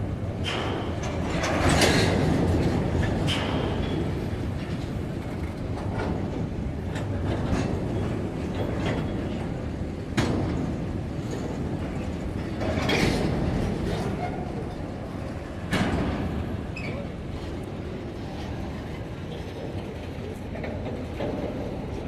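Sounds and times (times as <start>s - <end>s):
freight train rumbling: 0.0s - 22.0s
wheels clacking over rail joints: 0.1s - 22.0s.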